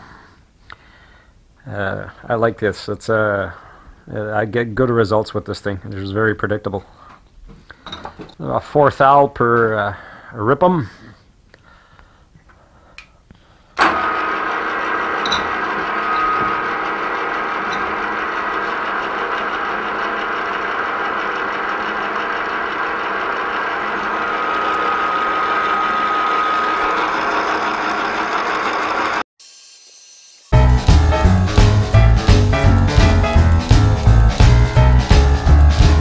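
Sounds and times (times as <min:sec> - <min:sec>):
milling machine boring with whine: 0:13.8 - 0:29.2.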